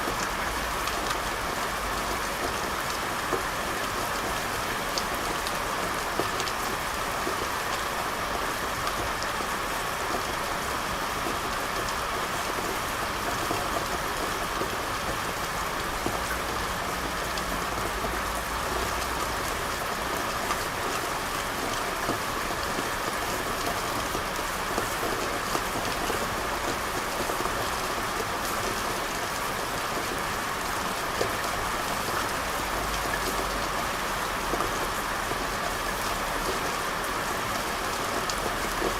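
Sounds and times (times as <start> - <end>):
rain on hard surfaces: 0.0 - 38.9.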